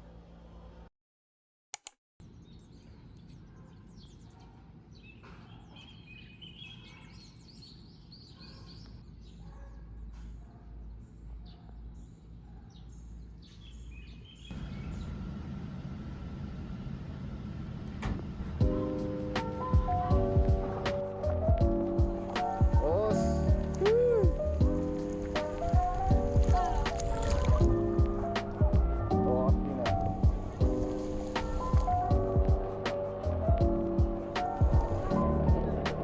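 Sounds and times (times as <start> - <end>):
small birds chirping: 2.2 - 36.0
low steady rumble: 14.5 - 33.6.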